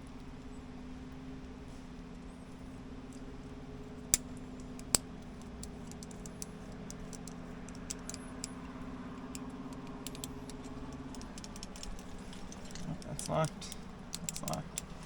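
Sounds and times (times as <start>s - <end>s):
steady low hum: 0.0s - 15.0s
carabiners and metal gear clinking: 4.1s - 15.0s.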